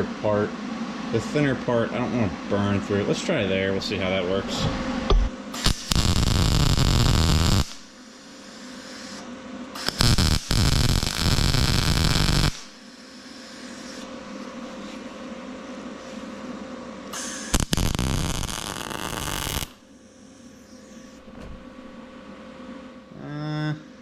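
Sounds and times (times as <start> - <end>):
welder arc crackling: 5.6 - 8.0, 9.8 - 12.8, 17.1 - 19.8.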